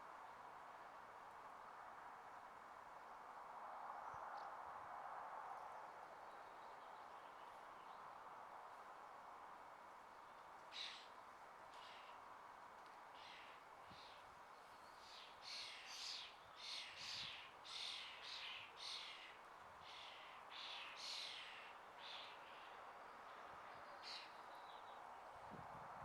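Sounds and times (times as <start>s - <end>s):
faint outdoor hiss: 0.0s - 26.0s
songbird chirping: 13.2s - 25.4s.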